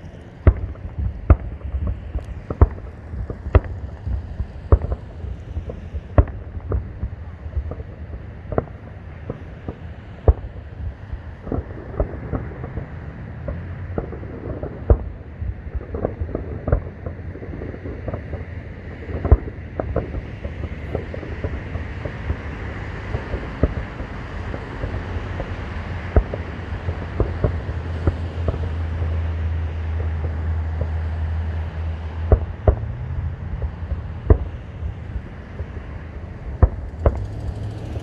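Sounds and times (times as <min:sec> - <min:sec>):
distant fireworks booming: 0:00.0 - 0:38.0
traffic rumble: 0:00.0 - 0:38.0
wind: 0:00.0 - 0:38.0.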